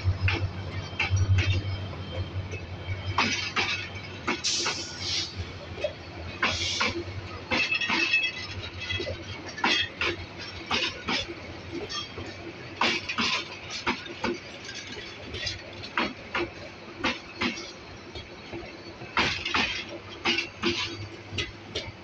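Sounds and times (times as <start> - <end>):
low train rumble: 0.0 - 22.0
train wheels clanking over track: 0.0 - 22.0.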